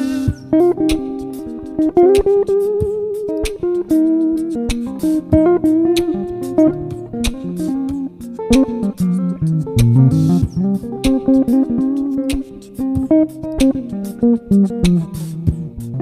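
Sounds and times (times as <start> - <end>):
instrumental band music: 0.0 - 16.0.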